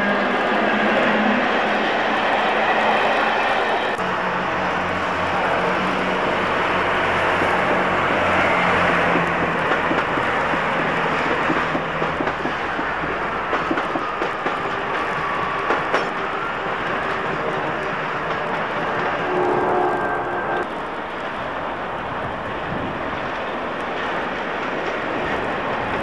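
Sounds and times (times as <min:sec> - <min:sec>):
train low drone: 0:00.0 - 0:26.0.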